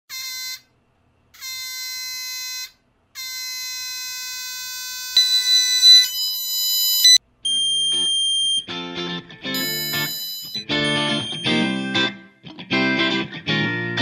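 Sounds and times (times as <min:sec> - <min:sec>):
higher buzzer tone: 0:00.1 - 0:00.7, 0:01.4 - 0:08.7, 0:09.5 - 0:12.2
electronic buzzer beeps: 0:01.4 - 0:08.7, 0:09.6 - 0:12.0.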